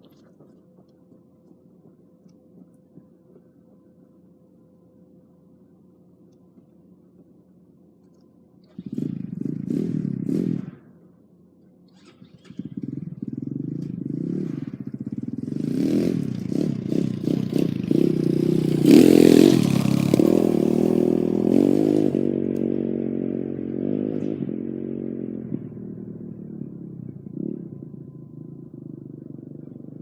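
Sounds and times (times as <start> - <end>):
dirt bike engine revving: 8.6 - 11.0, 11.9 - 30.0.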